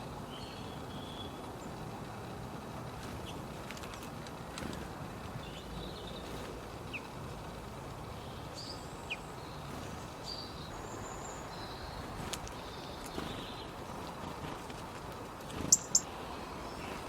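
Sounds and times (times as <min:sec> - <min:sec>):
outdoor background rumble: 0:00.0 - 0:17.0
small birds chirping: 0:00.0 - 0:17.0.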